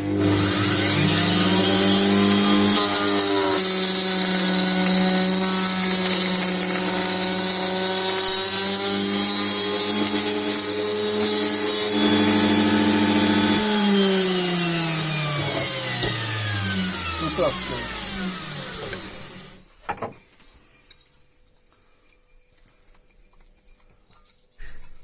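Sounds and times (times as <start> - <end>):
milling spindle motor: 0.1 - 19.6
spindle winding down: 0.2 - 19.6.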